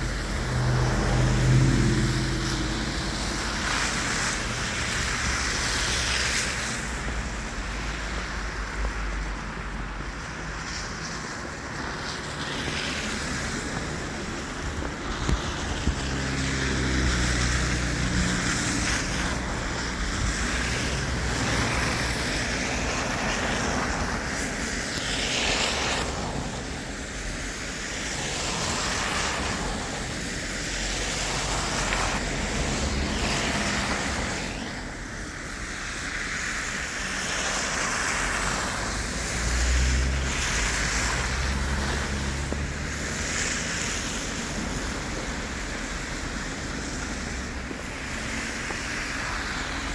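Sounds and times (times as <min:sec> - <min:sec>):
vehicle engine rumble: 0:00.0 - 0:24.5, 0:36.6 - 0:49.9
rushing wind-like noise: 0:00.0 - 0:49.9.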